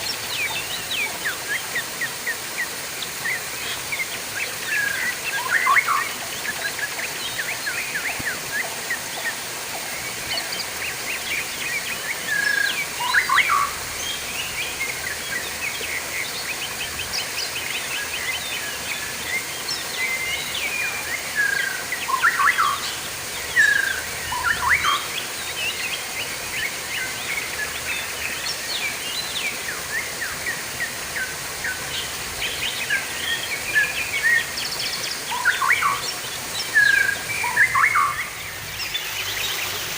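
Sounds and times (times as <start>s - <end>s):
running water hiss: 0.0s - 39.9s
small birds chirping: 0.0s - 39.9s.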